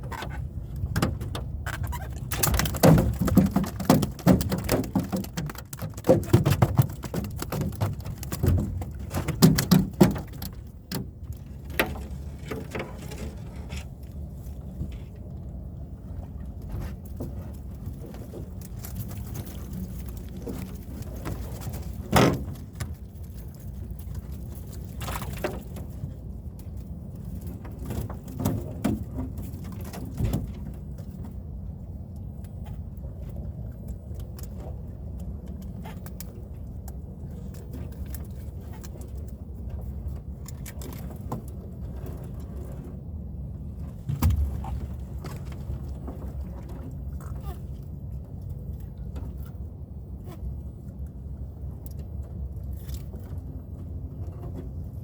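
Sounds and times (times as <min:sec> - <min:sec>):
boat motor humming: 0:43.6 - 0:52.3
knocks and bumps: 0:44.0 - 0:45.8.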